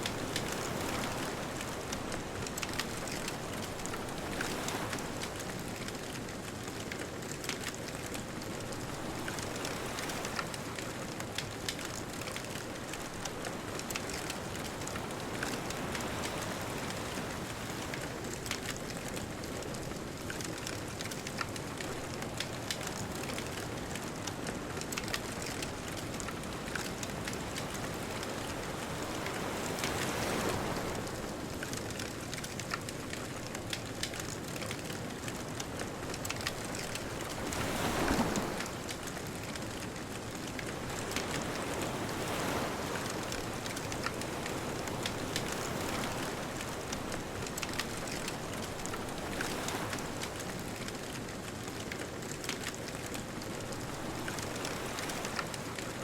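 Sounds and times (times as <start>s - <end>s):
distant ocean surf: 0.0s - 5.7s, 33.4s - 51.0s
wood fire crackling and popping: 5.3s - 9.0s, 17.6s - 27.2s, 31.5s - 41.4s, 46.7s - 55.8s.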